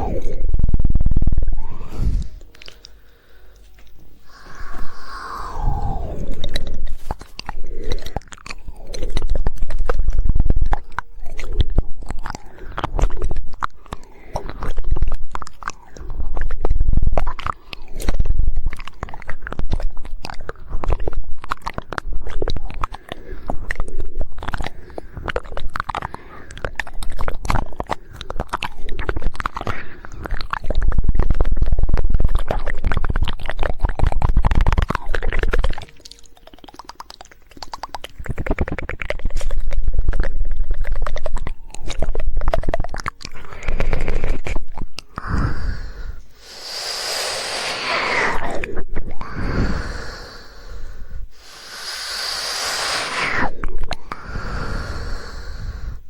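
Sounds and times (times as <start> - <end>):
heavy low rumble: 0.0 - 2.8
rapid tongue clicking: 0.0 - 56.0
wet mouth sounds: 0.0 - 56.0.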